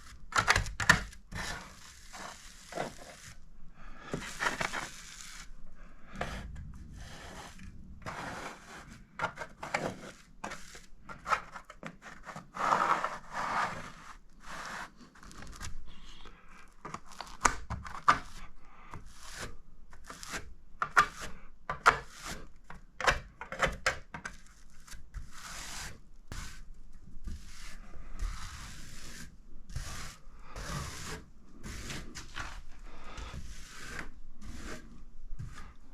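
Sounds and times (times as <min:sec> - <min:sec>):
scraping and rubbing strokes: 0:01.1 - 0:16.3, 0:24.4 - 0:35.9.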